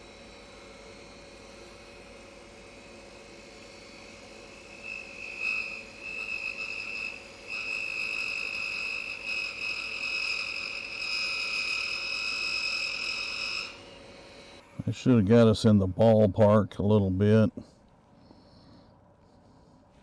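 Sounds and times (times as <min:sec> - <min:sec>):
lathe tool squealing whine: 0:00.0 - 0:14.7
lathe faint hum: 0:00.0 - 0:20.0.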